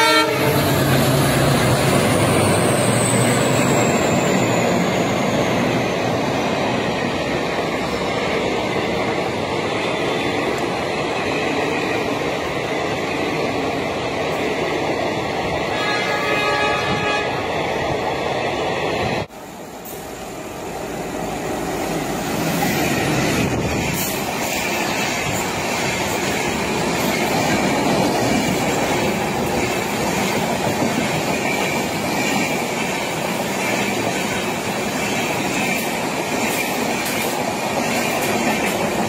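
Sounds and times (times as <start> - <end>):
train rumbling on rails: 0.0 - 39.0.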